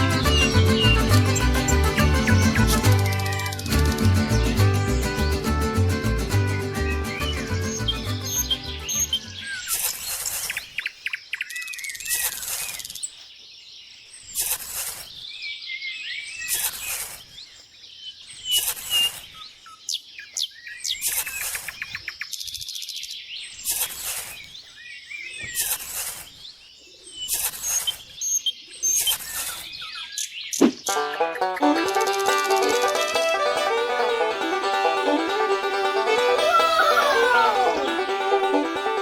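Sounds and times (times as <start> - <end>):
birds chirping: 0.0 - 9.8, 30.2 - 39.0.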